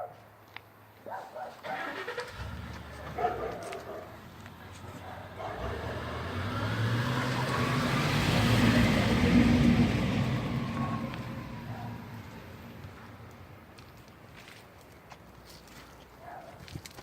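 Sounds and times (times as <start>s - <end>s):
delivery truck driving past: 1.9s - 13.1s.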